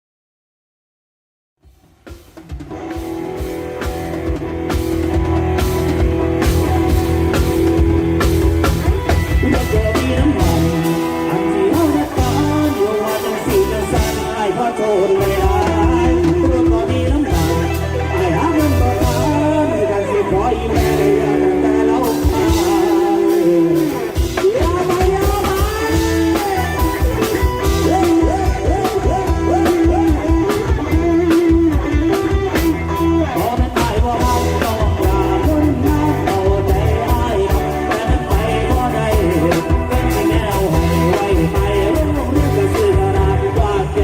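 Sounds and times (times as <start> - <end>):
steady drum beat: 1.6 - 19.8, 20.4 - 44.0
live band playing upbeat song: 1.6 - 44.0
sliding lead melody: 2.0 - 44.0.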